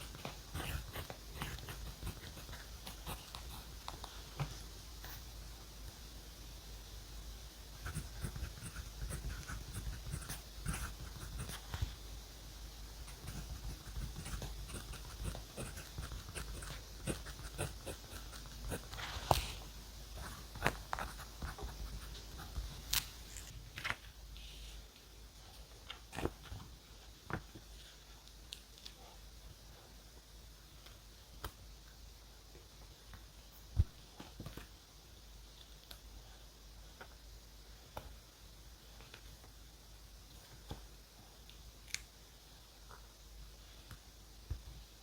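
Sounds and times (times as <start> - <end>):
pen scratching on paper: 0.0 - 3.8, 7.8 - 11.8, 13.1 - 19.6, 20.2 - 22.7.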